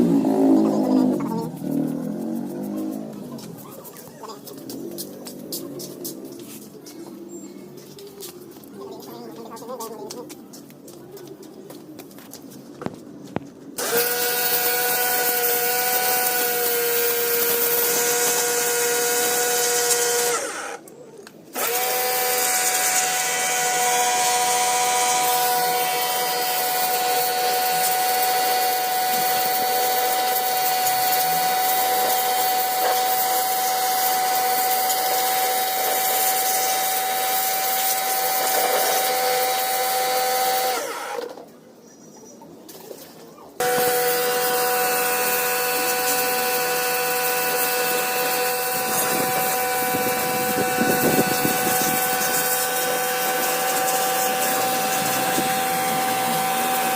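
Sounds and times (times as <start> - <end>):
power tool motor whining: 13.8 - 20.8, 21.5 - 41.5, 43.6 - 56.9.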